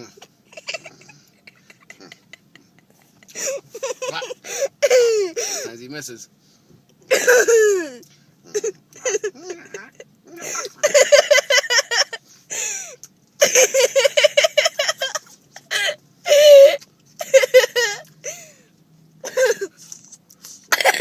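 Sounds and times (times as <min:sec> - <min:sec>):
child laughing hard: 0:00.5 - 0:05.4, 0:10.5 - 0:12.2, 0:13.4 - 0:18.0.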